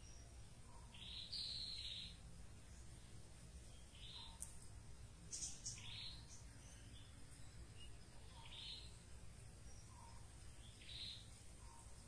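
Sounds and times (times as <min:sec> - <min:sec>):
harsh bird chirps: 0:00.0 - 0:02.2, 0:03.7 - 0:04.5, 0:05.2 - 0:09.0, 0:09.6 - 0:12.0
faint background hiss: 0:00.0 - 0:12.0.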